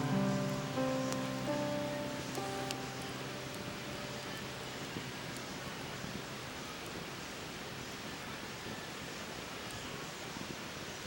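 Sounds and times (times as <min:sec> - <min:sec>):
bonfire hissing: 0:00.0 - 0:10.8
faint fire crackle: 0:00.0 - 0:11.0.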